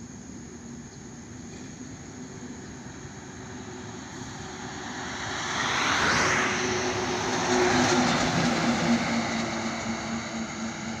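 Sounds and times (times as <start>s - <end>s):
truck passing on highway: 2.4s - 11.0s.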